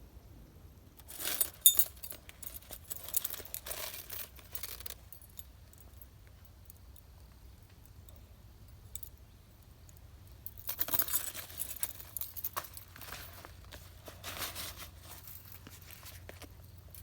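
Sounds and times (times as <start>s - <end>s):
rustling: 1.0s - 6.8s, 10.2s - 17.0s
small metal objects jangling: 1.0s - 17.0s.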